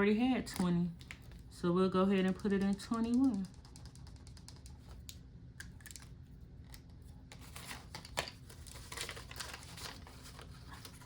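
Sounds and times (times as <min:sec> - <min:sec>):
paper banknotes rustling: 0:07.3 - 0:11.0.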